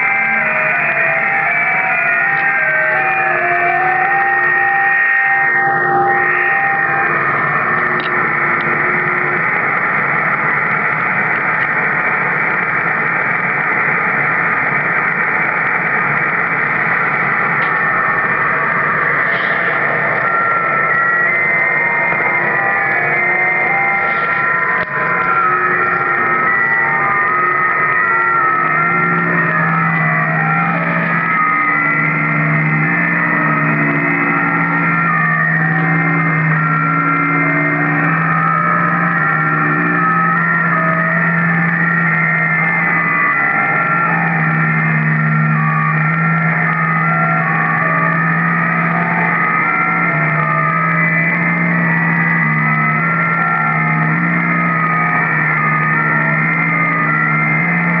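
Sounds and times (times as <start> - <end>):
radio hiss: 5.6 - 34.1.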